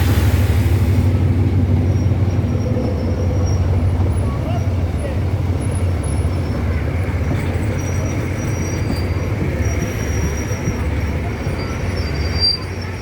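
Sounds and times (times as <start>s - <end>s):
train rumbling across bridge: 0.0s - 13.0s.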